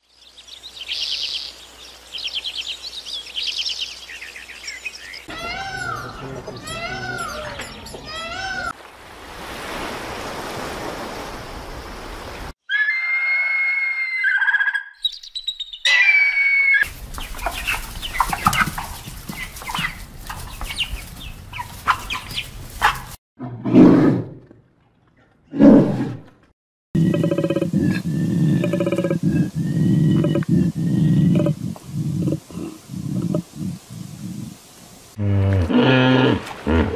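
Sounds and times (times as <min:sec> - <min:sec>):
peacock calling: 0:05.2 - 0:08.8, 0:12.6 - 0:23.1
chickens clucking and peeping: 0:17.0 - 0:23.1.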